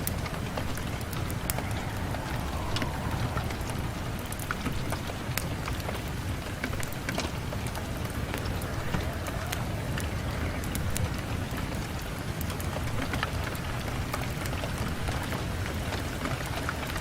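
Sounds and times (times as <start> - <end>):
low rumble: 0.0 - 6.4
rain on a window: 0.0 - 17.0.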